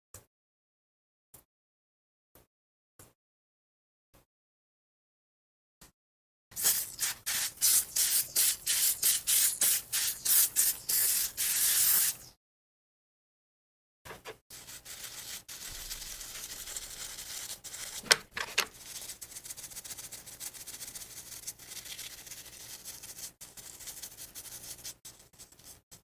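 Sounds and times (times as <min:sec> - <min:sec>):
scratchy rubbing: 0:14.5 - 0:26.0.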